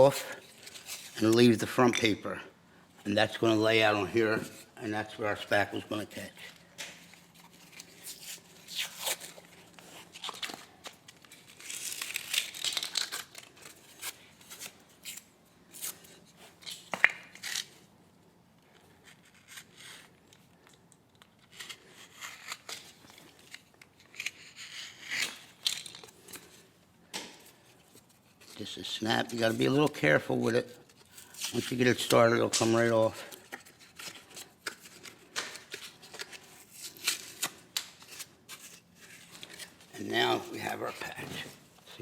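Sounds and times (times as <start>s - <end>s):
drywall paper tearing and crumbling: 7.4s - 16.1s, 21.4s - 26.5s.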